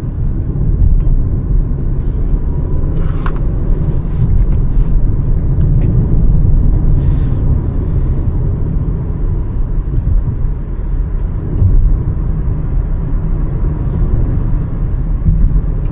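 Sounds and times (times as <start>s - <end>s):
car engine and road rumble: 0.0s - 15.9s.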